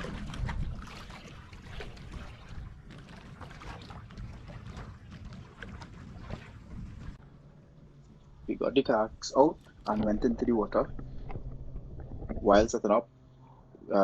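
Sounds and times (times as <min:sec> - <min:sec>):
water splashing from paddling: 0:00.0 - 0:07.4
wind rumble on microphone: 0:00.0 - 0:13.0.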